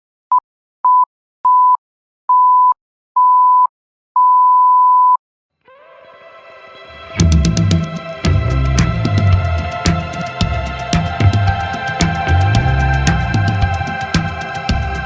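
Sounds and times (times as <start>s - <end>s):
soft music: 5.7s - 15.0s.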